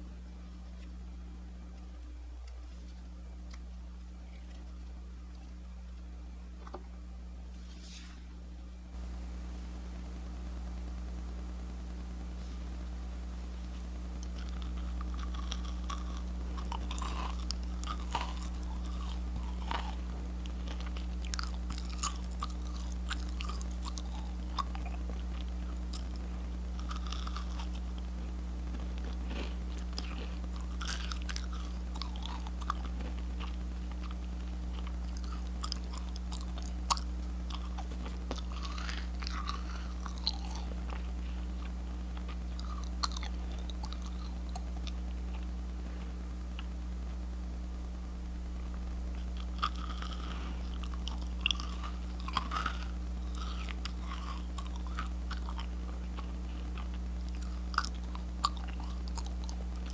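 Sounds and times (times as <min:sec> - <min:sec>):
steady low hum: 0:00.0 - 0:59.9
macaron shells crunching: 0:14.2 - 0:45.5, 0:49.2 - 0:59.9.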